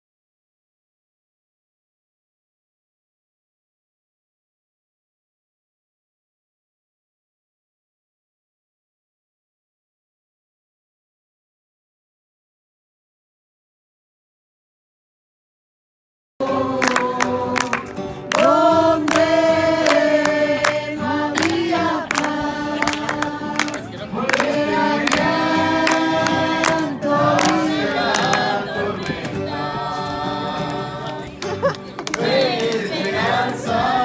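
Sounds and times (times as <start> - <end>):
group singing worship song: 16.4 - 34.0.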